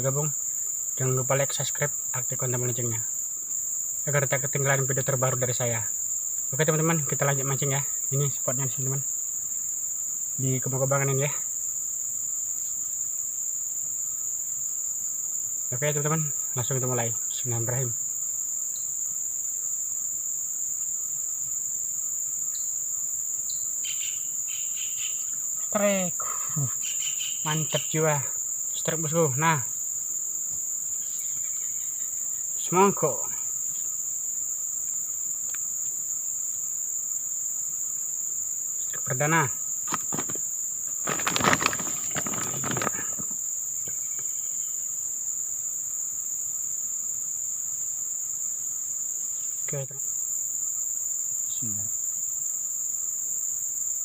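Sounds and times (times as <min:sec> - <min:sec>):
crickets shrilling: 0:00.0 - 0:54.0
insect chirps: 0:00.0 - 0:54.0
insect chorus drone: 0:00.0 - 0:54.0
short scuffling noises: 0:39.8 - 0:43.4.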